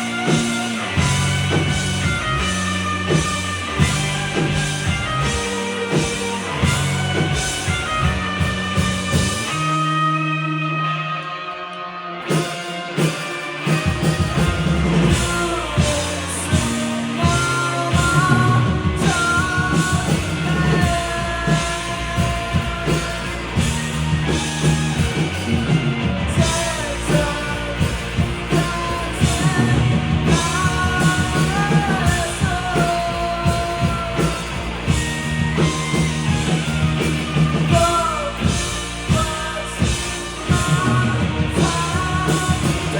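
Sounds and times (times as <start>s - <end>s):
drums: 0.0s - 42.9s
live rock band playing: 0.0s - 42.9s
person singing: 12.3s - 42.9s.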